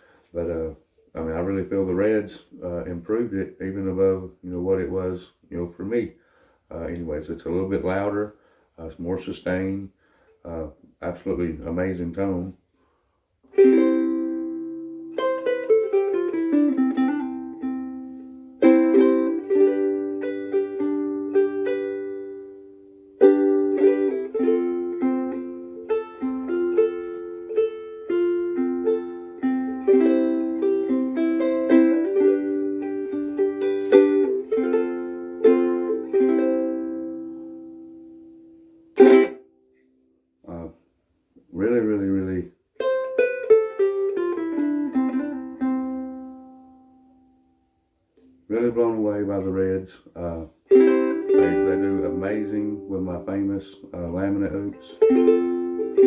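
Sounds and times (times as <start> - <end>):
ukulele chords and melody: 13.4 - 40.6, 42.7 - 47.6, 48.2 - 56.0.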